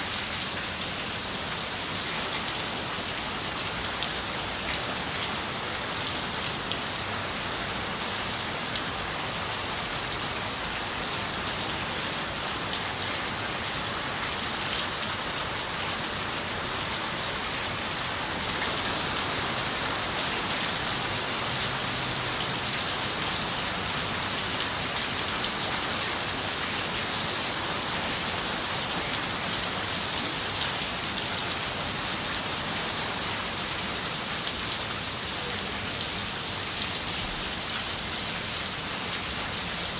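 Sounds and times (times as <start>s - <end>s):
rain on a window: 17.4s - 39.9s.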